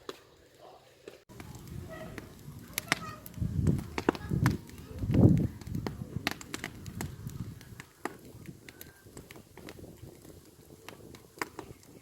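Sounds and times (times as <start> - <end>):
campfire crackling and popping: 0.0 - 12.0
wood snapping in fire: 1.3 - 12.0.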